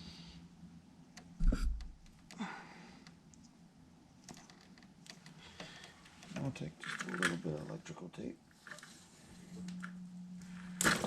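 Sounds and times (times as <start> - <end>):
heavy low thump: 1.4 - 2.0.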